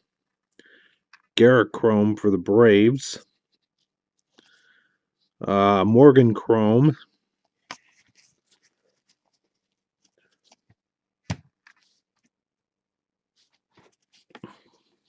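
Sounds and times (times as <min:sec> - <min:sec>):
cards rustling: 0:07.4 - 0:10.8, 0:13.4 - 0:15.0.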